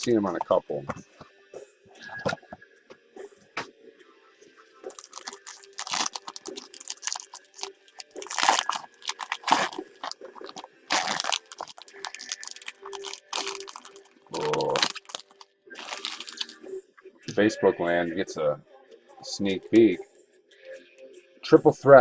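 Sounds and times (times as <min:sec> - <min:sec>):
packaging crinkling and tearing: 0:04.9 - 0:16.6.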